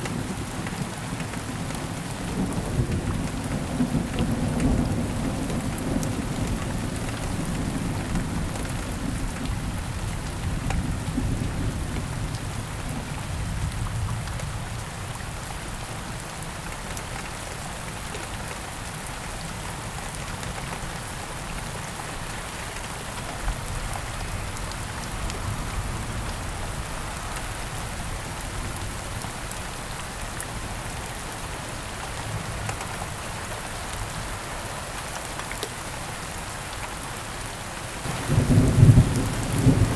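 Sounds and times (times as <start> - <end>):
steady rain falling: 0.0 - 39.9
low thunder rumble: 38.1 - 39.9.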